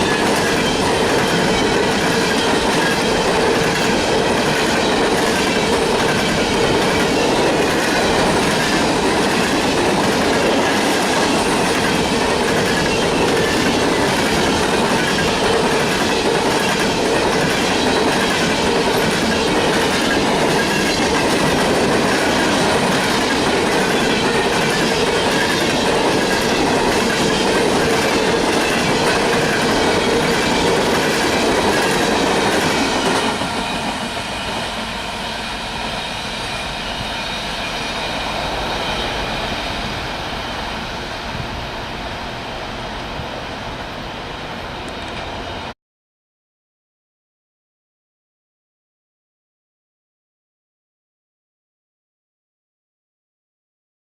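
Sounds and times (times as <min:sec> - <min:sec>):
wheels clacking over rail joints: 0:00.0 - 0:34.1
freight train rumble: 0:00.0 - 0:45.7.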